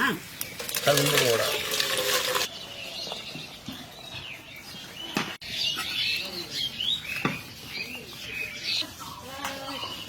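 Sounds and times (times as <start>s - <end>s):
birds chirping: 2.4s - 10.0s.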